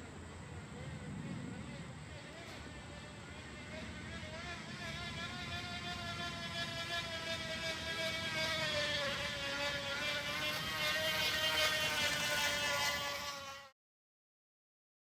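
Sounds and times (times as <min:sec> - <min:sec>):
plastic bottle buzzing on bicycle tyre: 0:01.5 - 0:13.8.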